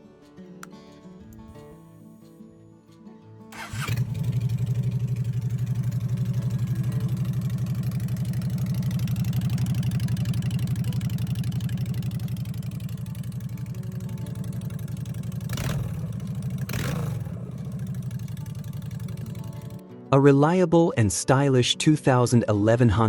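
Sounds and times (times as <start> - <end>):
motorcycle engine starting and idling: 3.5 - 19.8.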